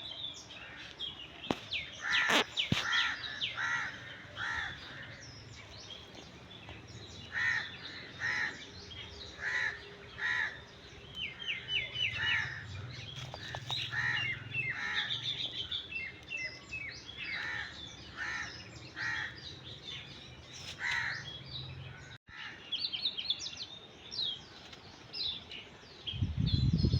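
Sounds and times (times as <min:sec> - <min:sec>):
loud bird call: 0:01.9 - 0:05.3.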